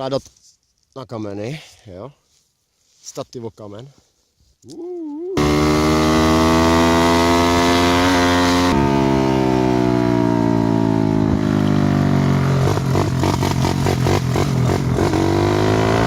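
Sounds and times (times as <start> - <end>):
dirt bike engine revving high: 5.4 - 16.0.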